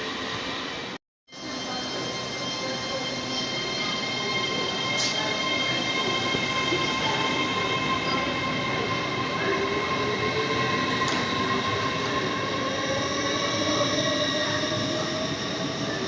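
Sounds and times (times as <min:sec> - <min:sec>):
train rumbling: 0:03.8 - 0:15.2.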